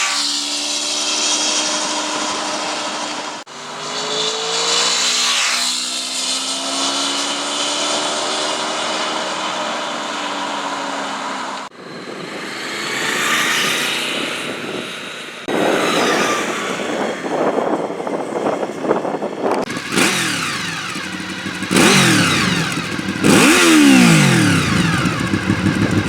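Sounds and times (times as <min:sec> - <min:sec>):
motorcycle engine running: 0:19.5 - 0:26.0.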